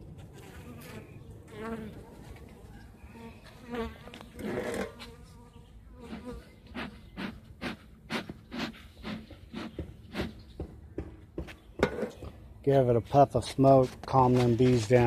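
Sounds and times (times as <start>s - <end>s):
honey bees buzzing: 0.2s - 2.4s, 3.0s - 7.8s.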